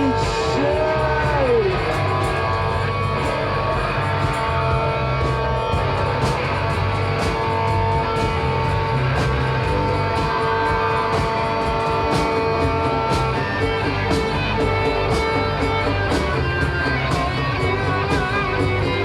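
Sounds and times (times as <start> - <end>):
drum or cymbal hits: 0.0 - 19.0
rock band playing: 0.0 - 19.0
strummed electric guitars: 0.0 - 19.0.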